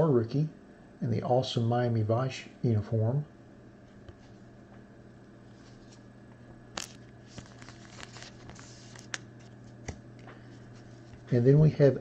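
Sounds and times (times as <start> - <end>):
low electrical hum: 0.0 - 12.0
card sleeves rustling: 5.5 - 6.1, 6.8 - 11.3.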